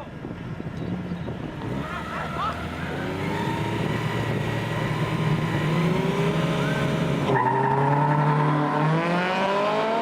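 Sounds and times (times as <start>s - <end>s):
truck engine accelerating: 0.7s - 10.0s.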